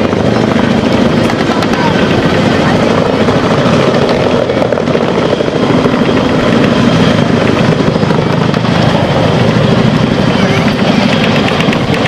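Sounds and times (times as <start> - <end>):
helicopter rotors and turbines: 0.0 - 12.0.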